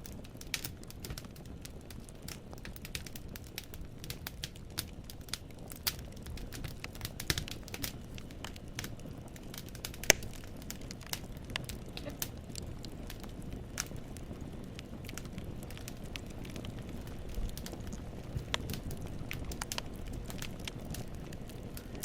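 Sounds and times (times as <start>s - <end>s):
wood fire crackling: 0.0s - 22.0s
logs popping and snapping: 0.4s - 22.0s.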